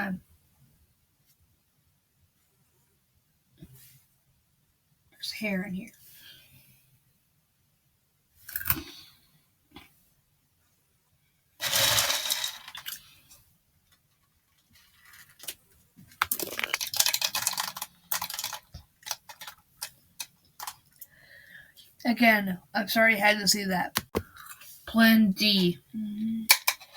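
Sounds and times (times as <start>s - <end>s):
cereal crunching while eaten: 14.9s - 19.9s.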